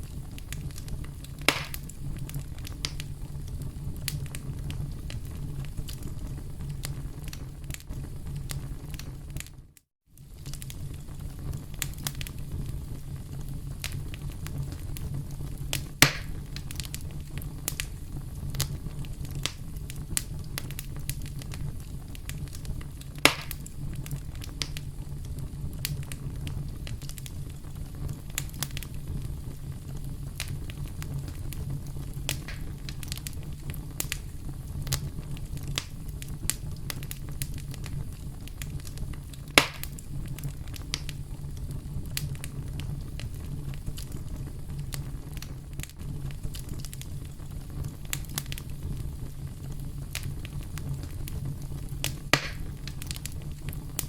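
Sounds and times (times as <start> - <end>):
campfire crackling: 0.0 - 54.0
low rumble of burning wood: 0.0 - 54.0
loud sharp pops: 1.4 - 1.9, 16.0 - 16.4, 23.2 - 23.7, 32.3 - 33.1, 39.6 - 40.0, 52.0 - 53.0.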